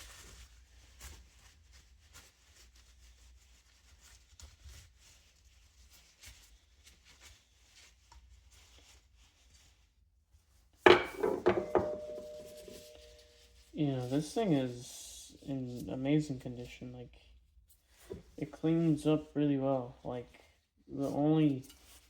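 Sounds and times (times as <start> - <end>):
handling and rubbing of fan parts: 10.9 - 13.2
loud ringing metal clank: 10.9 - 13.2.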